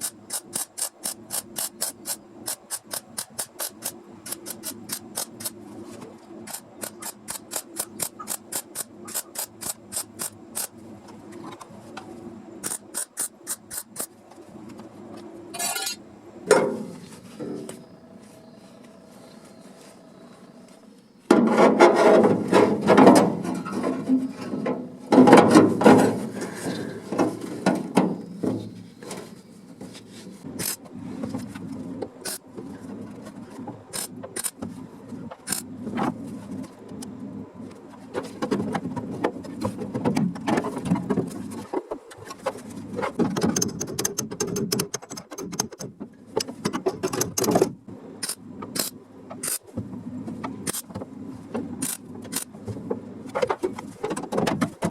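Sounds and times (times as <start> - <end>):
tools scraping sheet steel: 15.5 - 16.0.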